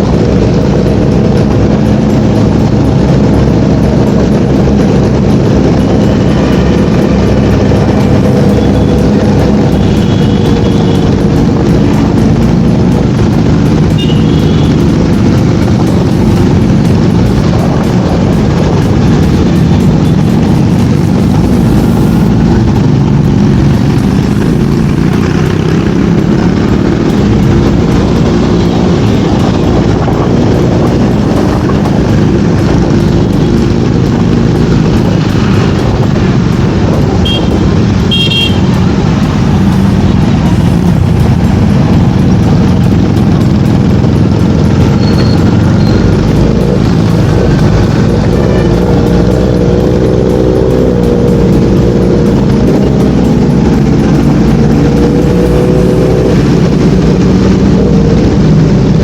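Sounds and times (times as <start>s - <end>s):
motorcycle engine: 0.0s - 59.0s
traffic noise: 0.0s - 59.0s
wind rumble on microphone: 14.6s - 59.0s.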